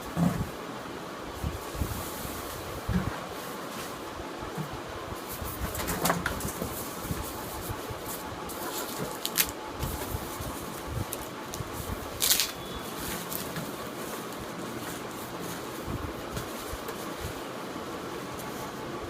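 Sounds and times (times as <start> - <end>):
steady background hiss: 0.0 - 19.0
handling clicks and rustles: 4.6 - 19.0.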